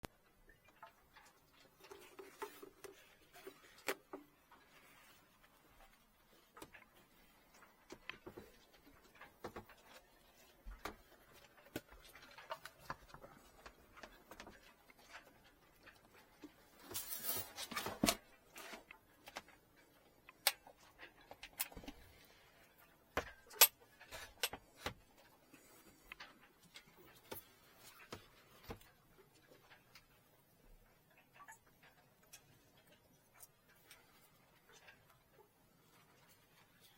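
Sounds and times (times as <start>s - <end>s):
scraping rustle: 0.9s - 19.6s.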